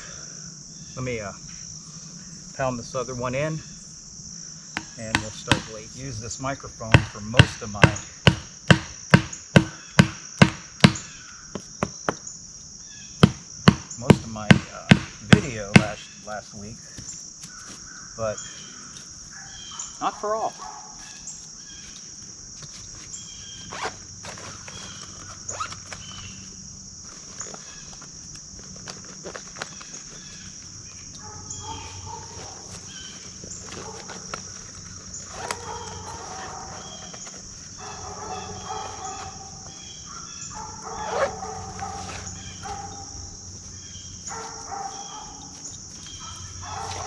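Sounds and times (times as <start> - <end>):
insect chorus: 0.0 - 47.0
sharp knock: 4.8 - 5.8, 7.0 - 11.1, 13.2 - 16.0
bird chirps: 15.3 - 22.1.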